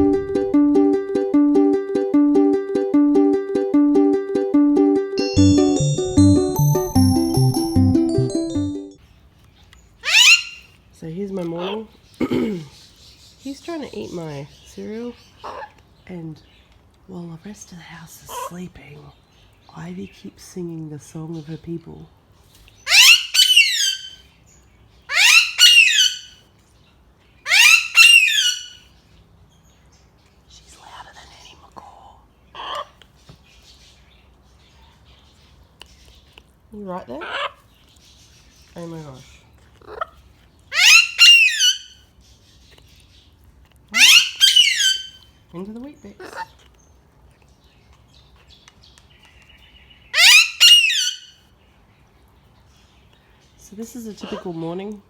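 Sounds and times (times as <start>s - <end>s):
parakeet shrill double calls: 10.0s - 10.6s, 22.9s - 24.2s, 25.1s - 26.4s, 27.5s - 28.8s, 40.8s - 42.0s, 44.0s - 45.2s, 50.2s - 51.3s
parrot screeching: 10.0s - 10.6s, 22.9s - 24.2s, 25.1s - 26.4s, 27.5s - 28.8s, 40.7s - 42.0s, 44.0s - 45.2s, 50.1s - 51.3s.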